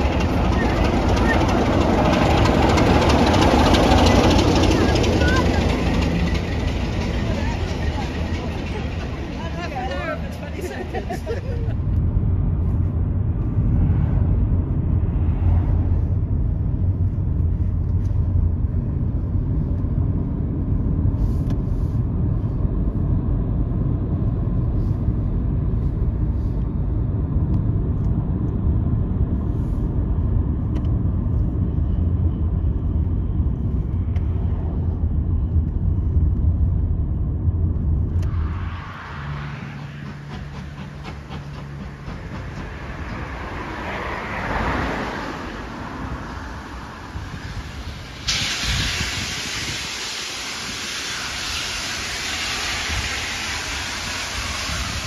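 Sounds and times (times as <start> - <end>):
faint engine tones: 0.0 - 23.2
train rumbling: 0.0 - 55.0.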